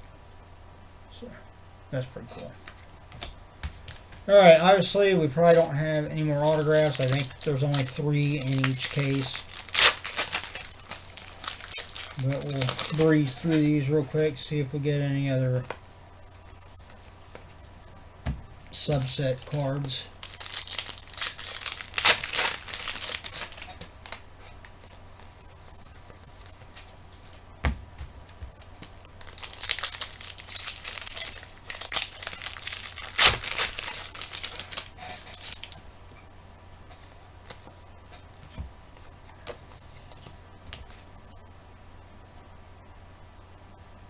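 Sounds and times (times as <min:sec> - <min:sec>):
card pack wrappers tearing: 0:05.4 - 0:15.7, 0:18.6 - 0:25.0, 0:28.6 - 0:35.8.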